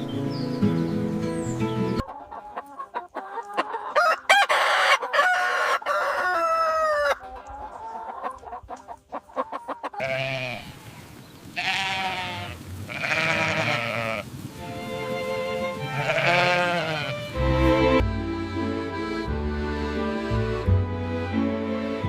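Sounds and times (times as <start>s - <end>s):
music: 0.0s - 2.0s, 14.7s - 16.3s, 17.0s - 22.0s
rooster crowing: 4.0s - 7.2s
sheep bleating: 10.0s - 10.8s, 11.6s - 14.3s, 15.9s - 17.4s.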